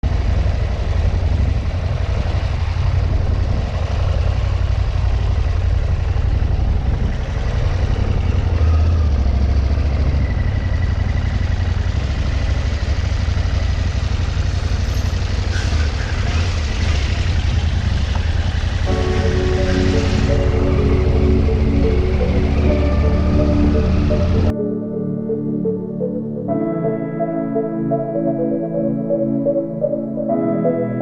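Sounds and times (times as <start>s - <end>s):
motorcycle engine running: 0.0s - 24.5s.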